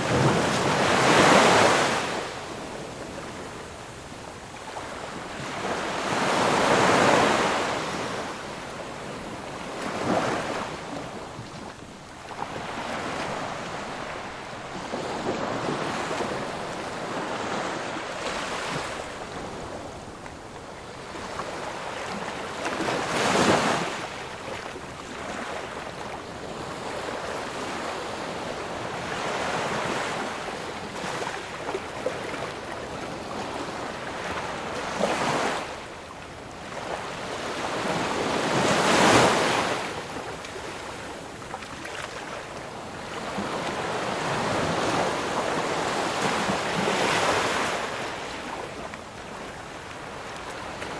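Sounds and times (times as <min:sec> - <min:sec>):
ocean waves breaking: 0:00.0 - 0:03.5, 0:04.6 - 0:25.8, 0:36.6 - 0:50.9.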